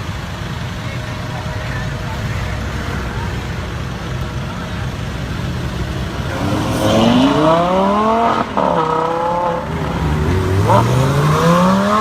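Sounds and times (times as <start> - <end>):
car engine accelerating hard: 1.9 - 12.0.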